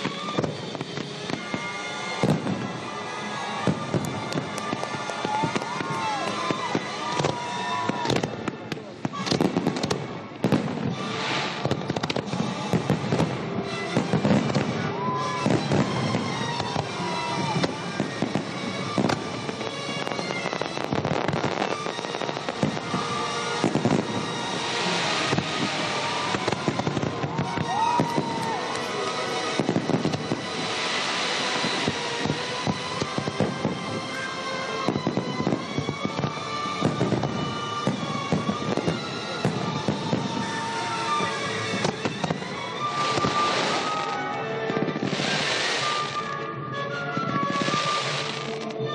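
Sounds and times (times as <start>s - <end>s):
fireworks bursts and crackling: 0.0s - 48.9s
music playing: 0.0s - 48.9s.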